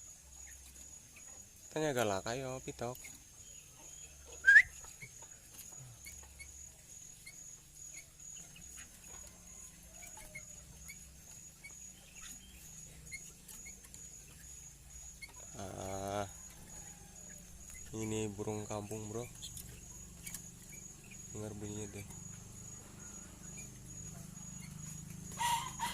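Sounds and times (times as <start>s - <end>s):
bird rising call: 4.4s - 4.8s
faint short chirps: 4.4s - 4.8s.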